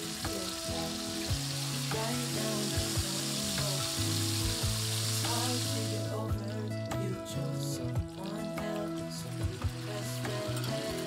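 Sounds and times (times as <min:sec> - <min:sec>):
fish sizzling in a frying pan: 0:00.0 - 0:06.9, 0:08.0 - 0:11.0.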